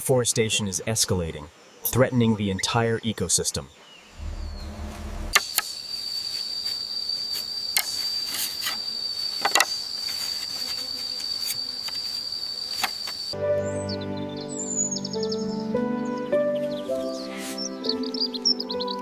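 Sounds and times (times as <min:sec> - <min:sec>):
cricket trilling: 0:01.5 - 0:13.4
low hum: 0:04.1 - 0:05.4.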